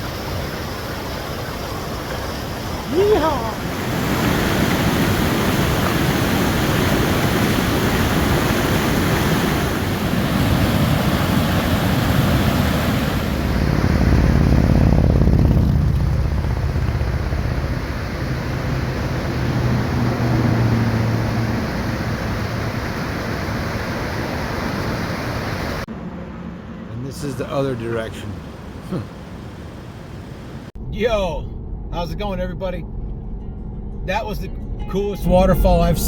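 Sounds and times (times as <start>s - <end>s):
waterfall roaring: 0.0s - 14.4s, 16.3s - 25.8s
vehicle engine and road noise: 0.0s - 36.0s.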